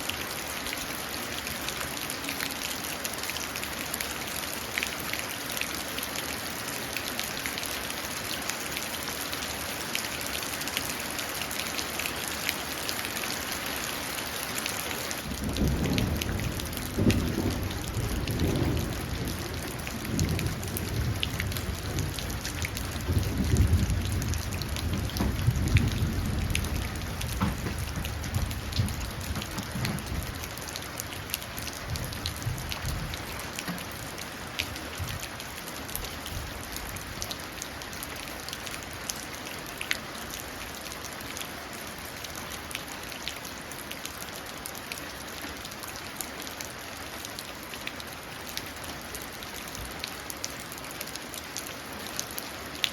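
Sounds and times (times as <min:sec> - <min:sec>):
rain dripping into puddle: 0:00.0 - 0:52.9
rolling thunder: 0:15.2 - 0:30.6, 0:31.8 - 0:33.2.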